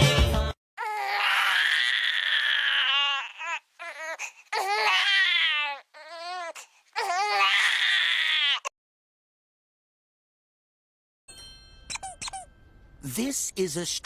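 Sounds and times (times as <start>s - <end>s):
high-pitched crying: 0.8s - 8.7s, 11.9s - 12.5s.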